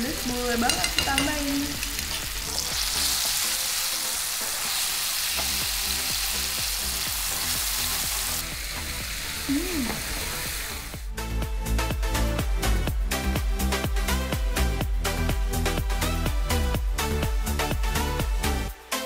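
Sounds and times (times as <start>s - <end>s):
paste sizzling in hot oil: 0.0s - 11.1s
background music with steady beat: 0.0s - 19.0s.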